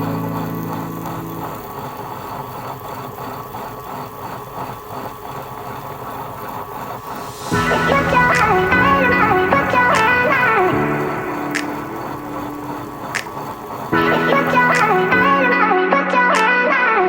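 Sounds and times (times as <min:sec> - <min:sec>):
background music: 0:00.0 - 0:02.2, 0:07.2 - 0:17.0
electric wet grinder running: 0:00.0 - 0:15.8.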